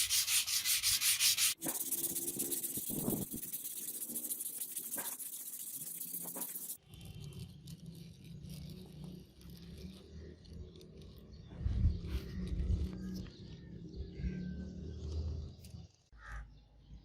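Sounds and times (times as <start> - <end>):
abrasive sanding: 0.0 - 10.3.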